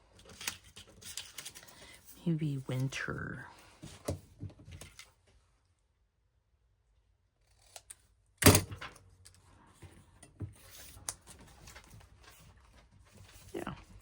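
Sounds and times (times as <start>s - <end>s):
paper and tools rustling: 0.0s - 5.3s, 8.8s - 14.0s.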